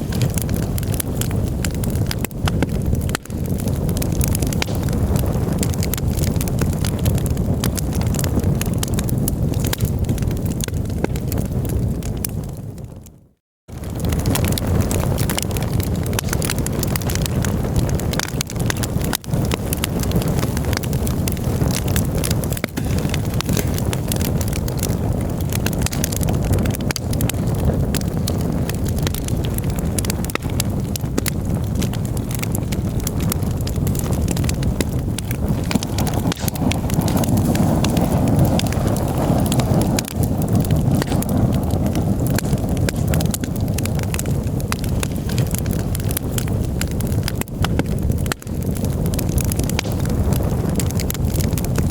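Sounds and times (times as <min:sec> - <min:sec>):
campfire crackling and popping: 0:00.0 - 0:51.9
steady low rumble: 0:32.3 - 0:45.1.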